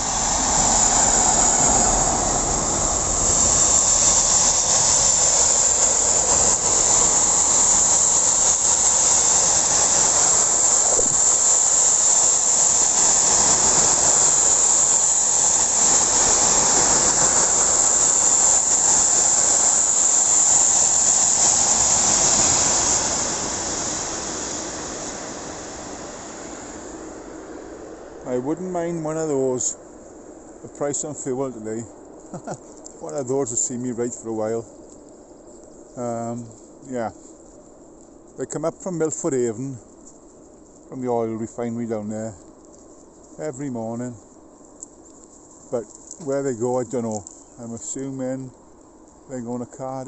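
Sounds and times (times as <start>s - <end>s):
freight train wheels on rails: 0.0s - 27.2s
high hiss: 0.0s - 50.0s.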